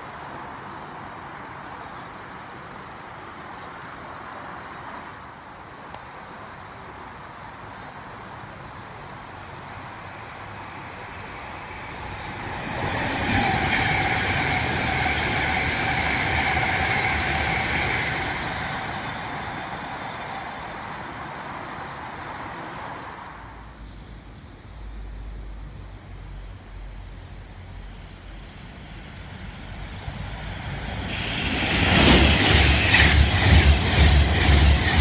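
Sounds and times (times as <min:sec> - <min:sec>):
steady train whine: 0:00.0 - 0:35.0
electric train passing: 0:08.4 - 0:35.0.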